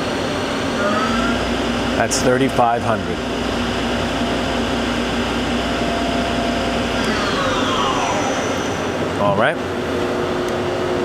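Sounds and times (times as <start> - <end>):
lathe spindle whining: 6.8 - 9.7.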